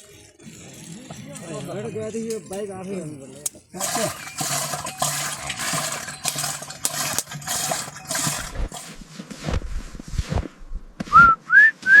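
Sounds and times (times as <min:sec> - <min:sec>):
rustling and scraping: 0:03.5 - 0:11.1
person whistling: 0:11.1 - 0:12.0.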